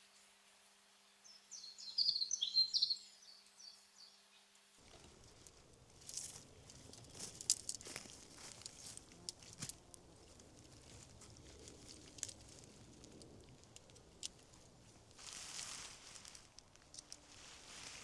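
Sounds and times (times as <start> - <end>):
faint rustling and crackling: 4.8 - 18.0.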